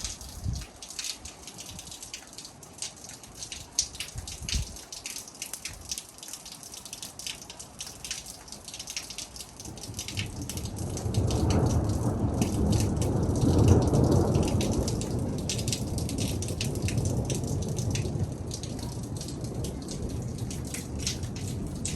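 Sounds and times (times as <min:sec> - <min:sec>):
rain drops ticking: 0:00.0 - 0:21.9
thunder rumble: 0:09.6 - 0:21.9.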